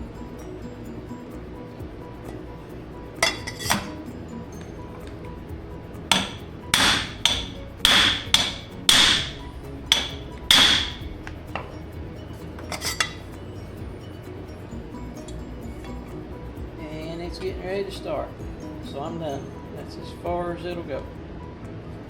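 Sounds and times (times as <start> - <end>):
hammer striking metal pipe: 3.2 - 4.0, 6.1 - 11.7, 12.7 - 13.2.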